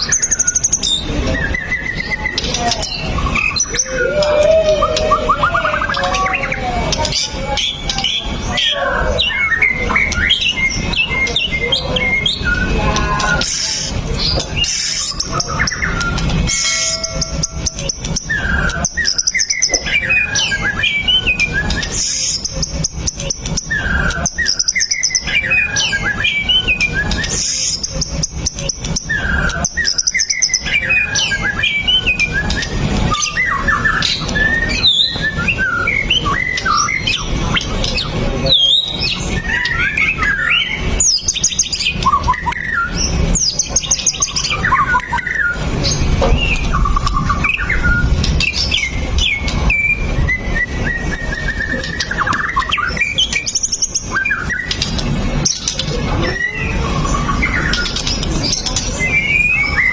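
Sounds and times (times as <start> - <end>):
bird singing varied whistled song: 0.0 - 59.9
steady low rumble: 40.5 - 59.1.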